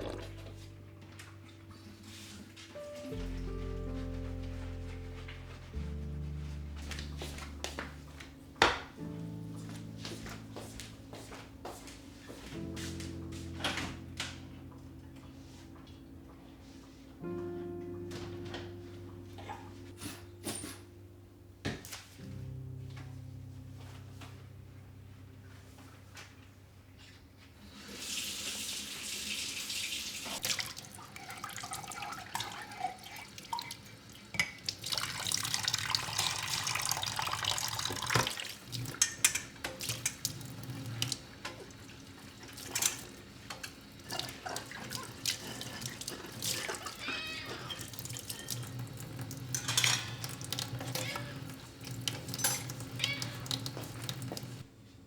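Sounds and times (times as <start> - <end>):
tap water running into sink: 27.7 - 54.7.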